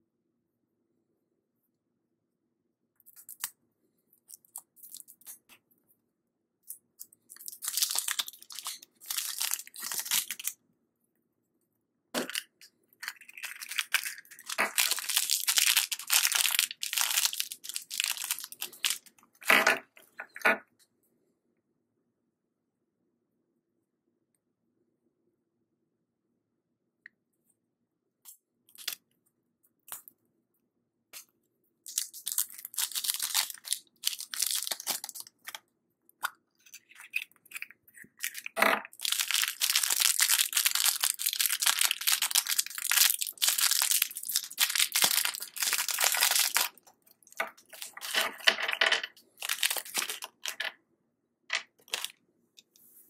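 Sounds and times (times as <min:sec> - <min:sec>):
wrapper crinkling and tearing: 0:07.3 - 0:10.6, 0:12.2 - 0:19.1, 0:31.9 - 0:35.6, 0:36.7 - 0:50.7, 0:51.8 - 0:52.2.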